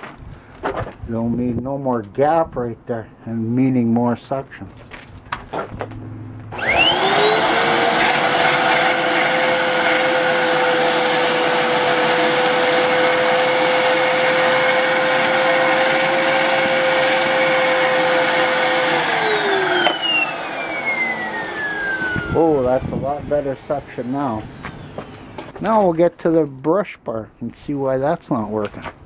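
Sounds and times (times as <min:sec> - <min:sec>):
upright vacuum cleaner motor whine: 0:05.8 - 0:25.7.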